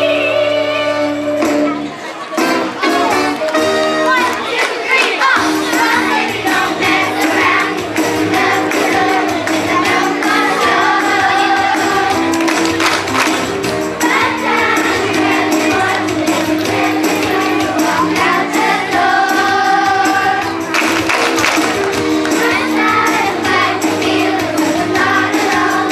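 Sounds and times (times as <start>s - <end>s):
instrumental accompaniment: 0.0s - 4.6s, 5.4s - 25.9s
chorus singing in unison: 4.4s - 21.0s, 21.6s - 25.9s
percussion hits: 5.4s - 25.9s.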